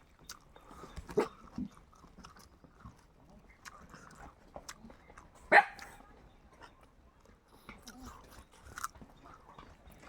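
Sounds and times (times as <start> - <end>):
chewing and biting food: 0.0 - 6.0, 6.6 - 10.0.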